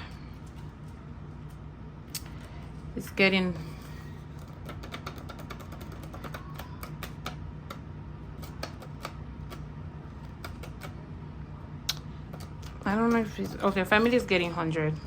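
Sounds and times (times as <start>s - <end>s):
steady low hum: 0.0s - 15.0s
banknotes being counted by hand: 3.9s - 11.0s.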